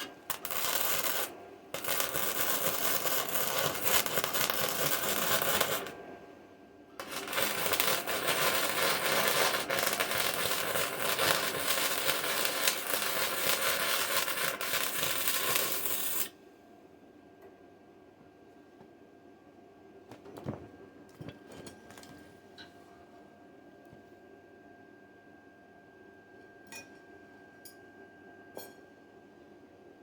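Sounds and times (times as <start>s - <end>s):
electric arc welding crackling: 0.0s - 6.0s, 7.0s - 16.3s.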